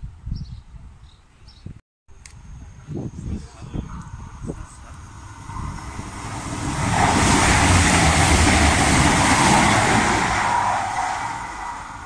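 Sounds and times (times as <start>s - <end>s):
train passing at speed: 3.9s - 12.0s.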